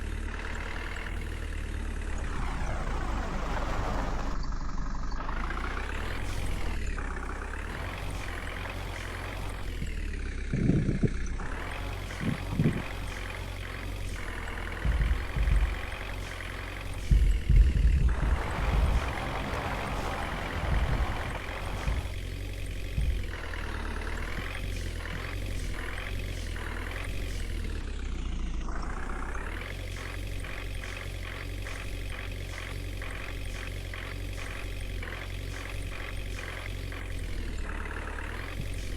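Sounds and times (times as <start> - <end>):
truck engine humming: 0.0 - 38.9
heavy low thumps: 10.6 - 13.4, 14.1 - 27.2.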